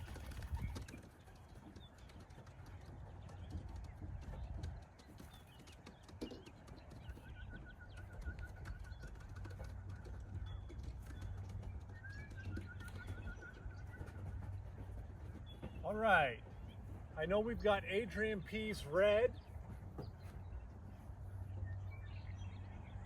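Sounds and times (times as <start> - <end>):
bird high rapid trill: 7.1 - 19.4.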